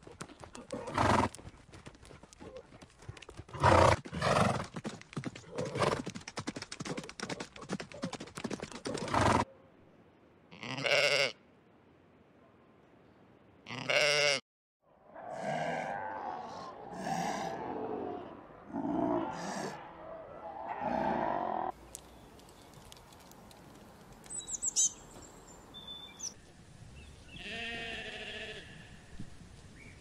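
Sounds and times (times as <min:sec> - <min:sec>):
horse hooves clopping: 0:00.0 - 0:09.4, 0:21.7 - 0:25.3
horse calls: 0:06.8 - 0:09.4.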